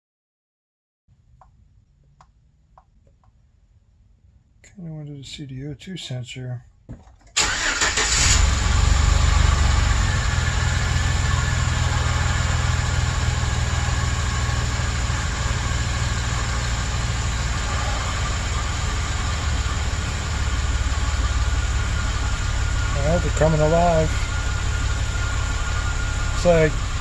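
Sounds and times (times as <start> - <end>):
van engine idling: 7.4 - 27.0.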